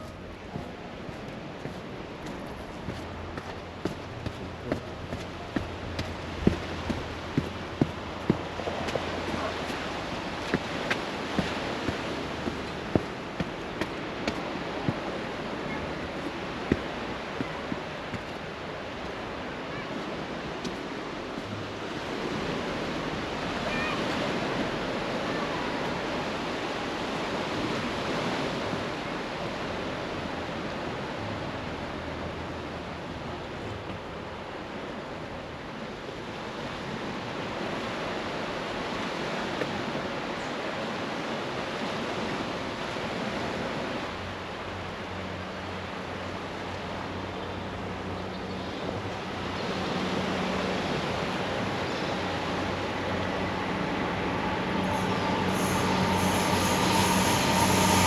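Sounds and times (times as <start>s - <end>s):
train approaching: 0.0s - 34.9s, 48.9s - 58.0s
sea waves washing onto beach: 0.0s - 48.1s.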